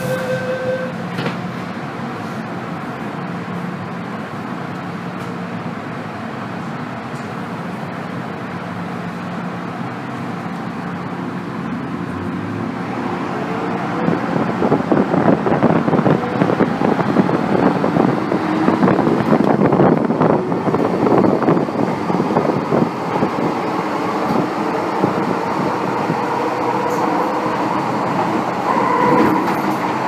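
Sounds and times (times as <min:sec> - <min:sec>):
metro car motor tones: 0:00.0 - 0:01.3, 0:24.0 - 0:30.0
wheels rumbling on rails: 0:00.0 - 0:30.0.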